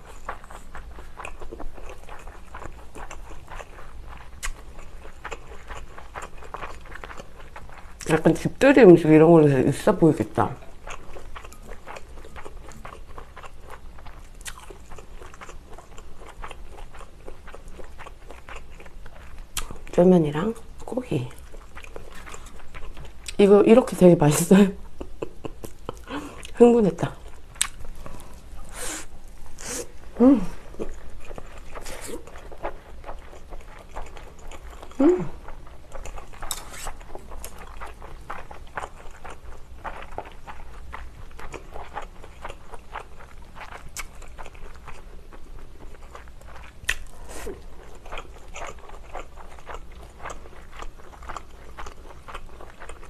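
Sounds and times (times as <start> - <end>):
chewing food: 0.0 - 53.0.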